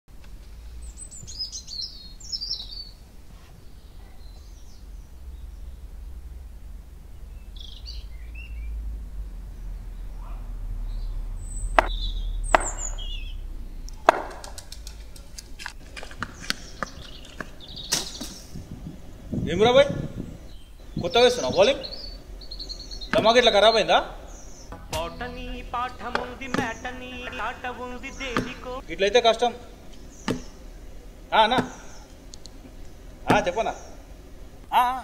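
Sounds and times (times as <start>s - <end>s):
low rumble: 0.1s - 34.8s
birds chirping: 0.1s - 35.0s
sharp knocks: 11.8s - 13.1s, 13.9s - 15.3s, 23.1s - 23.6s, 24.7s - 27.6s, 28.2s - 28.8s, 30.2s - 30.6s, 31.4s - 32.0s, 32.6s - 33.7s
faint clicks: 13.8s - 18.1s, 32.1s - 33.0s.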